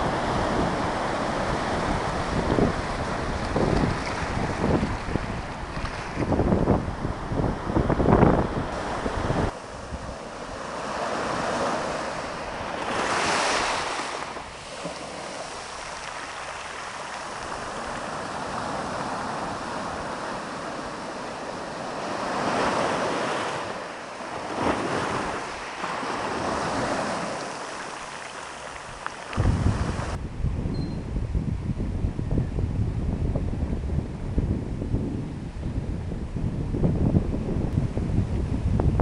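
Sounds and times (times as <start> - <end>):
wind buffeting microphone: 0.0 - 27.9, 28.8 - 39.0
sea waves washing on shore: 0.0 - 30.2.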